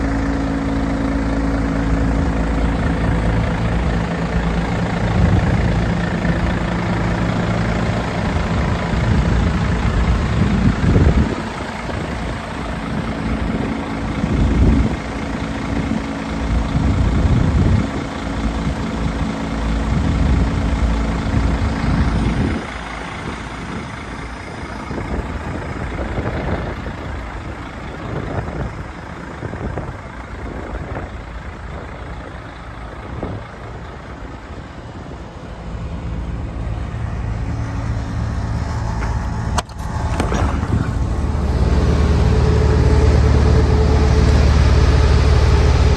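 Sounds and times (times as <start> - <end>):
diesel truck engine idling: 0.0 - 45.9
uneven rumble: 36.4 - 45.9.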